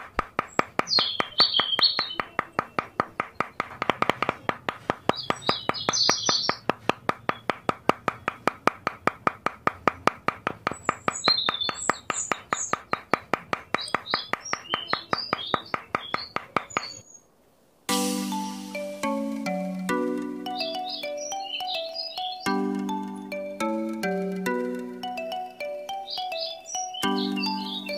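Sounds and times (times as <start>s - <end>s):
hammer tapping wooden post: 0.0s - 17.0s
faint bird chirps: 0.9s - 3.0s, 13.7s - 17.4s, 20.5s - 22.6s, 25.8s - 27.9s.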